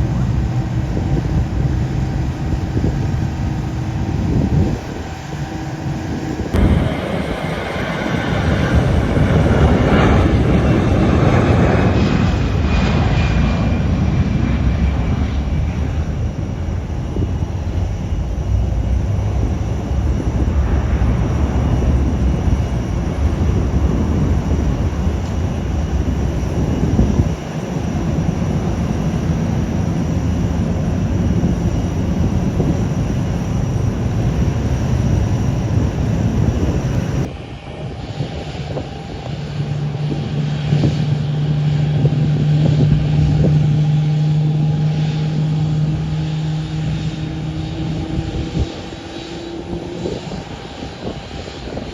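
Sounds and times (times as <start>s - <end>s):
airliner engines rumbling: 0.0s - 51.9s
faint engine whine: 0.0s - 51.9s.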